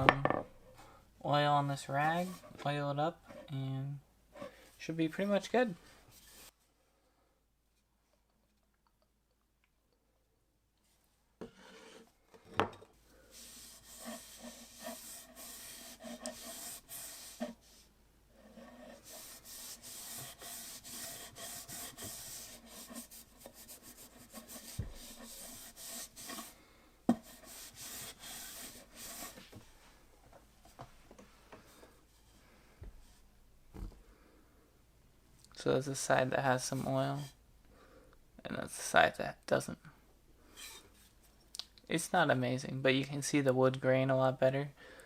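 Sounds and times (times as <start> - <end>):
cloth rag rubbing wood: 6.1 - 6.5, 13.3 - 29.9.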